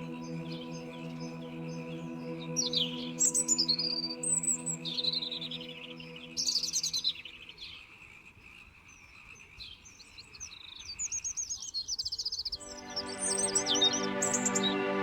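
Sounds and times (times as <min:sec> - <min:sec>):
soft ambient music: 0:00.0 - 0:07.2, 0:12.6 - 0:15.0
small songbird singing: 0:00.0 - 0:14.9.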